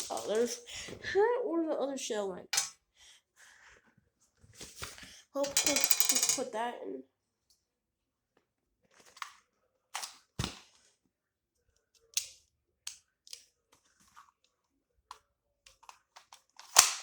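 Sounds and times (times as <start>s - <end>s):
toy pistol plastic clicks: 15.7s - 17.0s.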